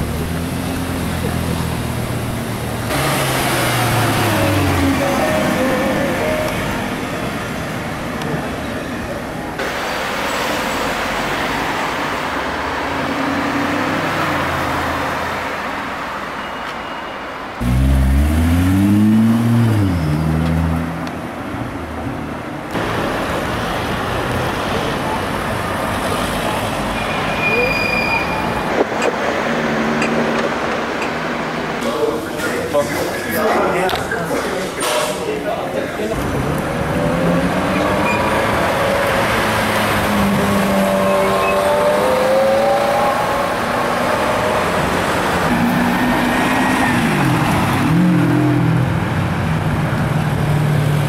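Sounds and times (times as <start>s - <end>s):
road and tyre noise: 0.0s - 51.0s
street traffic: 0.0s - 51.0s
sports car engine accelerating: 17.6s - 21.2s, 36.2s - 46.2s.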